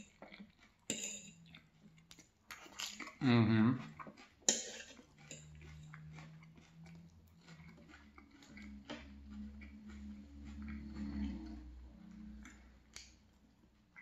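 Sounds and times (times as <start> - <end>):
wet chewing: 0.0 - 14.0
cutlery clinking on plate: 0.9 - 1.4, 4.5 - 5.8
low steady hum: 3.0 - 14.0.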